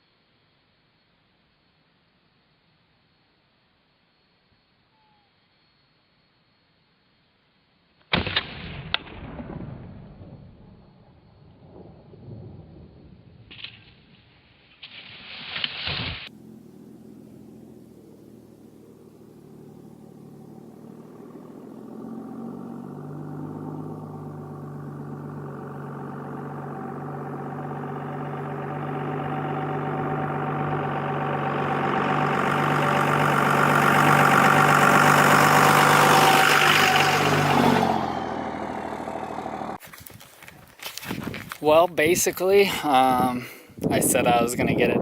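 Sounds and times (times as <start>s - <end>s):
vehicle engine running: 16.3s - 40.6s.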